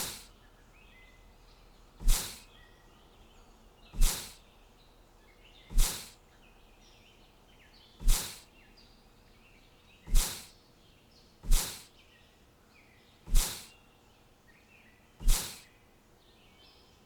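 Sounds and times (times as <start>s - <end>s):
faint bird chirps: 0.0s - 17.0s
loud whooshes: 5.7s - 6.1s, 8.0s - 8.4s, 10.1s - 10.5s, 11.5s - 11.8s, 13.3s - 13.7s, 15.2s - 15.6s.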